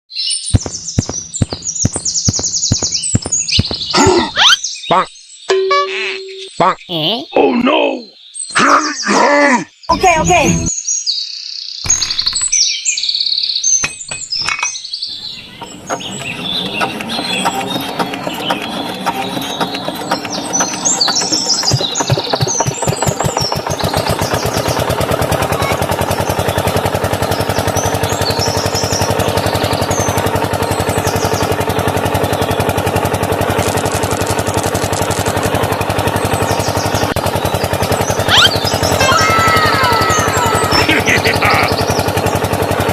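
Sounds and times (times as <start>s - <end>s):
small diesel engine running: 0.5s - 4.6s, 11.9s - 12.6s, 15.1s - 42.9s.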